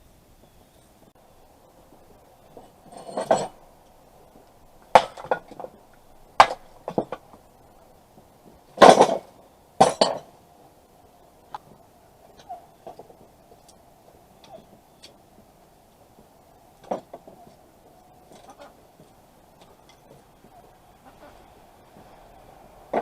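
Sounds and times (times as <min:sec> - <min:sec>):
metal objects clanking: 0:02.5 - 0:03.6, 0:08.8 - 0:10.4.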